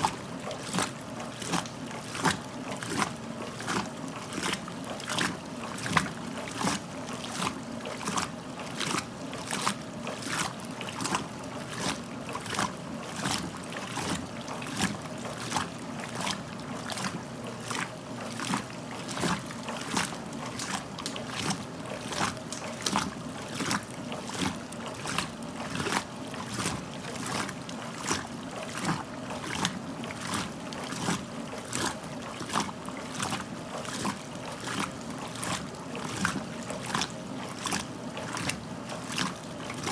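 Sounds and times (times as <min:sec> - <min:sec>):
washing machine motor hum: 0:00.0 - 0:39.9
water sloshing in washing machine: 0:00.0 - 0:39.9.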